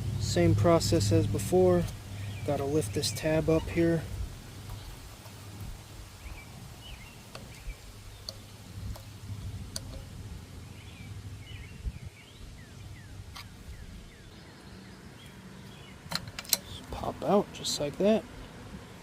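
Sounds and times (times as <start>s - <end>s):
birds chirping: 0.0s - 18.7s
low steady hum: 0.0s - 19.0s
sharp plastic clicks: 7.3s - 10.1s, 16.1s - 16.9s.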